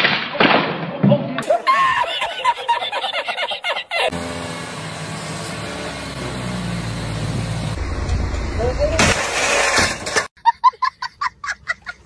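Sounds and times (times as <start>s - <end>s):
man cackling laugh: 1.4s - 4.1s, 10.4s - 12.0s
car engine running: 4.1s - 10.2s.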